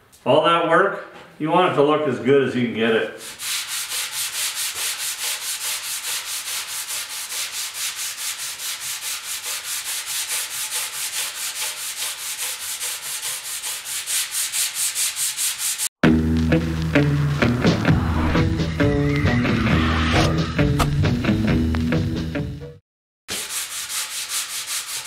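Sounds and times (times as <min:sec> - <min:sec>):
sandpaper scratching on metal: 0:03.2 - 0:15.9, 0:23.3 - 0:25.0
music: 0:16.0 - 0:22.8.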